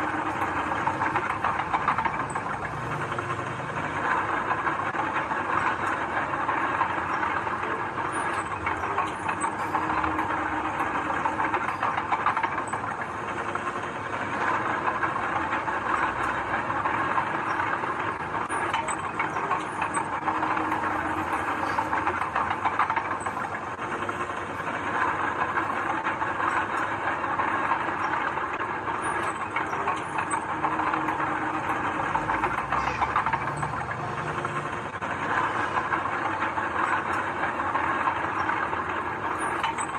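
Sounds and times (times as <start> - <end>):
machinery clattering and rattling: 0.0 - 39.9
diesel engines running: 30.5 - 36.2.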